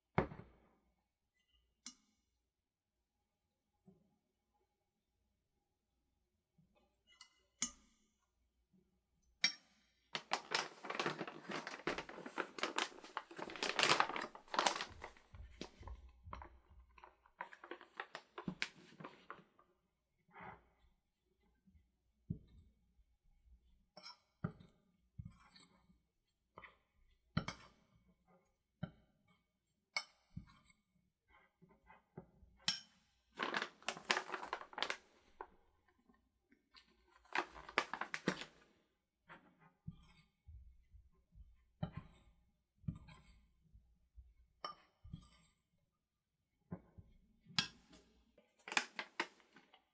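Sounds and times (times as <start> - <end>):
crinkling and rustling: 10.1 - 19.5, 33.4 - 35.6, 37.1 - 38.7, 48.6 - 49.9.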